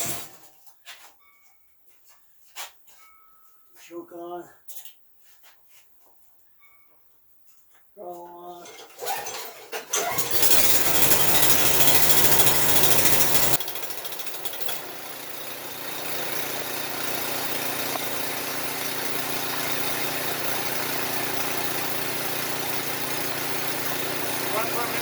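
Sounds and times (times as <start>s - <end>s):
small engine running: 10.0s - 25.0s.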